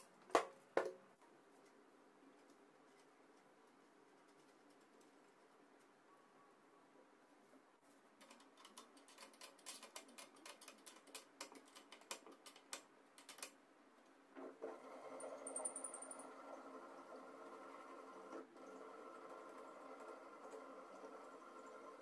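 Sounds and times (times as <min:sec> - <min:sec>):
faint high whine: 0:05.9 - 0:07.6.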